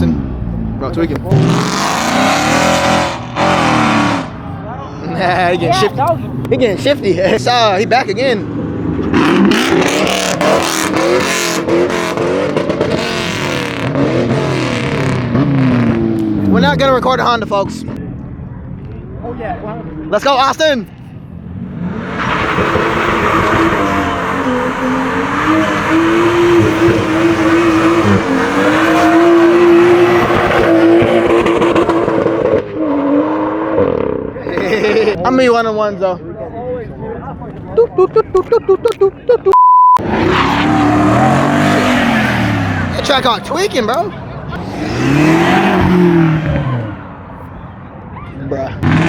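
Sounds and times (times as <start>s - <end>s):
car engine revving hard: 1.3s - 4.4s, 8.5s - 17.2s, 21.5s - 35.2s, 40.0s - 43.9s, 44.5s - 47.1s, 48.8s - 49.0s
tires squealing: 21.7s - 35.2s, 40.0s - 49.0s.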